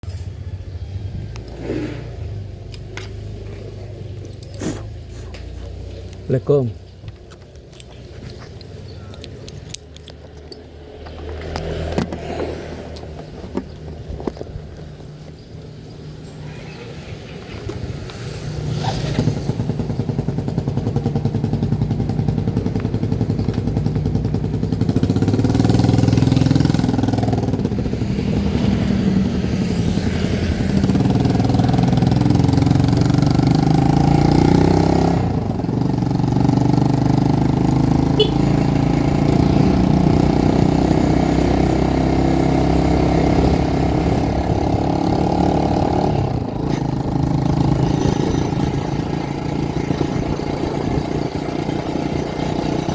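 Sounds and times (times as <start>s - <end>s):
vehicle engine revving: 10.4s - 14.8s, 17.5s - 52.9s.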